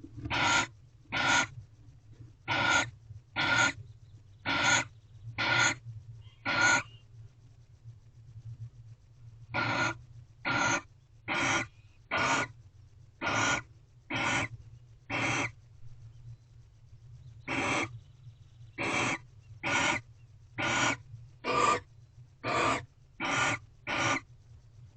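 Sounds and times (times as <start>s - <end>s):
low electrical hum: 0.0s - 24.9s
owl hissing calls: 0.3s - 1.5s, 2.5s - 3.8s, 4.4s - 7.0s, 9.6s - 12.6s, 13.2s - 14.5s, 15.1s - 15.6s, 17.4s - 18.0s, 18.8s - 24.3s.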